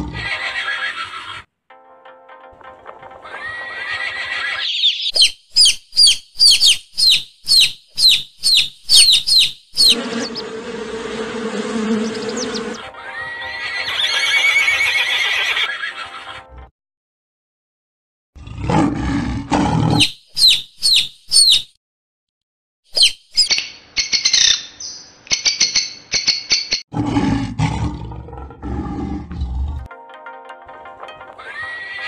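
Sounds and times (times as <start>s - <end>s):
horse neighing: 0.0s - 1.5s, 3.2s - 4.7s, 9.8s - 16.2s.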